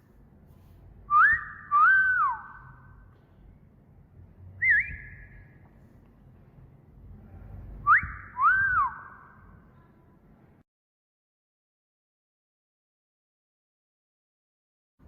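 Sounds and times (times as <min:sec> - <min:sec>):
short rising whistle: 0:01.1 - 0:02.8, 0:04.6 - 0:05.4, 0:07.8 - 0:09.2
wolf whistle: 0:01.1 - 0:02.9, 0:04.6 - 0:05.5, 0:07.8 - 0:09.4.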